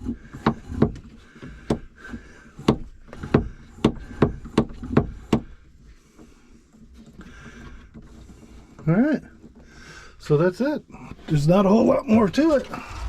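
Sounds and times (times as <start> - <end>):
hard fittings knocking and clacking: 0.0 - 9.8.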